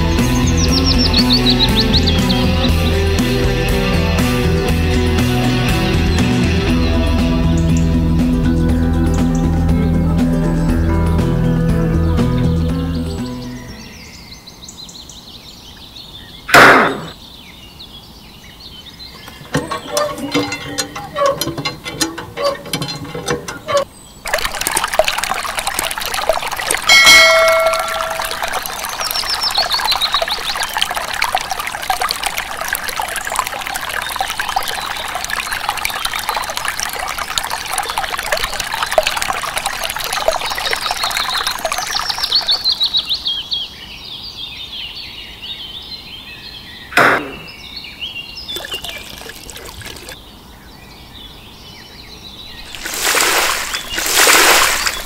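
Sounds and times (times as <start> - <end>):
sharp knock: 16.5 - 17.2, 47.0 - 47.5
water pouring and splashing: 19.2 - 43.0, 48.5 - 50.2, 52.5 - 55.0.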